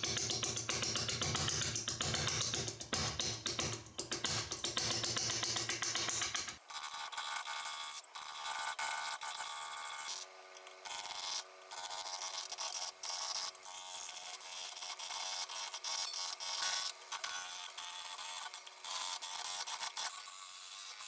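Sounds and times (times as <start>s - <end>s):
music: 0.0s - 6.6s.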